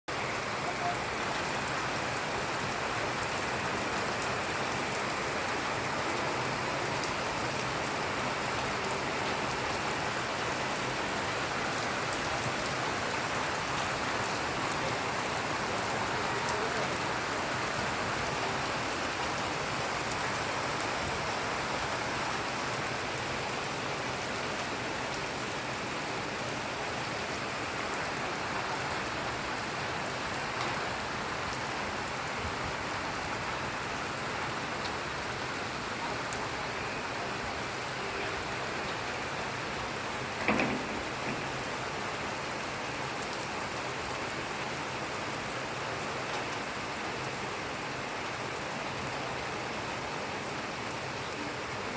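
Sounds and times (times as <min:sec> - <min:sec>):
heavy rain falling: 0:00.1 - 0:51.9.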